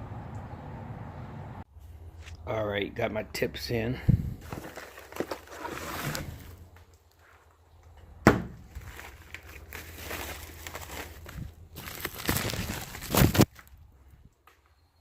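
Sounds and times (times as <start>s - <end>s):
handling noises: 4.4s - 13.8s.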